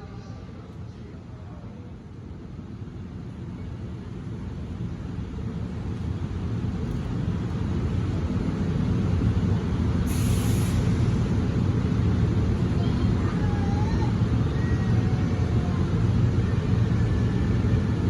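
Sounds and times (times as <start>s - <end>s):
locomotive rumble: 0.0s - 18.0s
burst of hiss: 10.1s - 11.0s.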